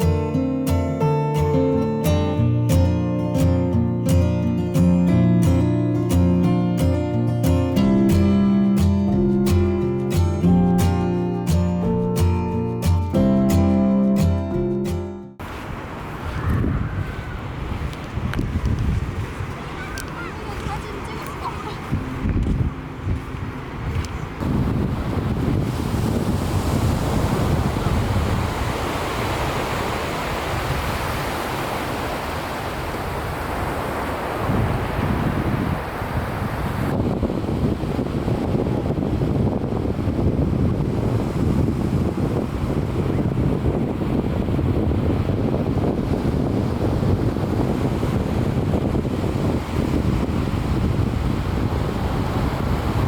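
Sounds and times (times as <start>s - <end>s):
wind buffeting microphone: 2.4s - 53.0s
sea waves washing onto beach: 15.4s - 53.0s.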